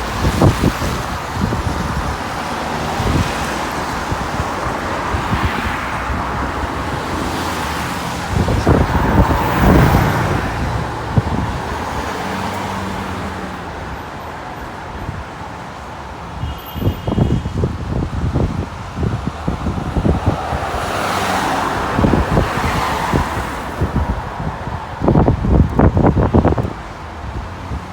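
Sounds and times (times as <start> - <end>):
wind buffeting microphone: 0.0 - 14.2, 16.8 - 27.9
vehicles passing: 0.0 - 27.9.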